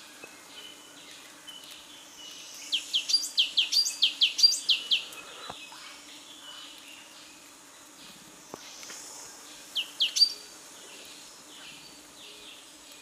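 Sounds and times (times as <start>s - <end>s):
faint high bird chirping: 0.2s - 7.4s, 9.7s - 10.5s.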